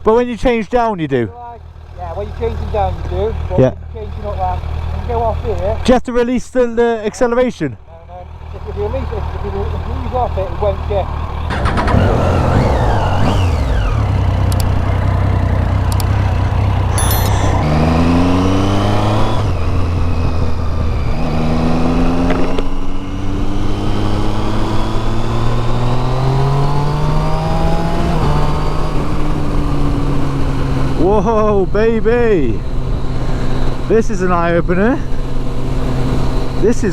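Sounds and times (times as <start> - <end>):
motorcycle engine accelerating: 8.3 - 31.9, 34.7 - 36.7.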